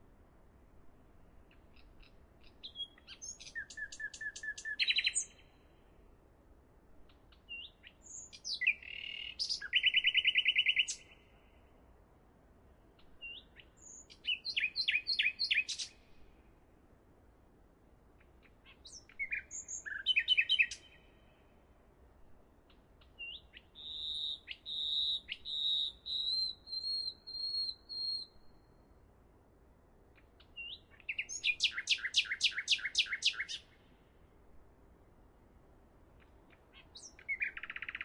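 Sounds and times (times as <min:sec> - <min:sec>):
bird chirps: 0:01.5 - 0:05.6, 0:07.3 - 0:11.3, 0:13.0 - 0:16.1, 0:18.4 - 0:21.4, 0:23.0 - 0:28.8, 0:30.2 - 0:33.8, 0:36.2 - 0:38.0.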